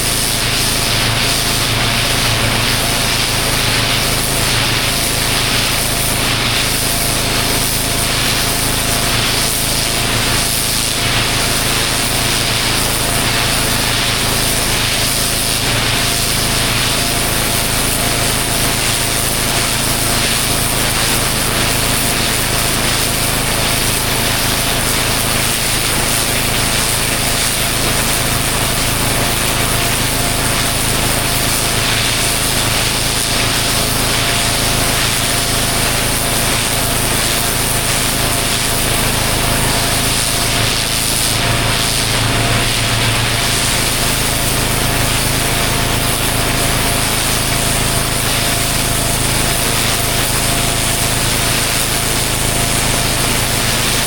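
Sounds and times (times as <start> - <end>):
pressure washer engine drone: 0.0 - 54.0
water jet hissing: 0.0 - 54.0.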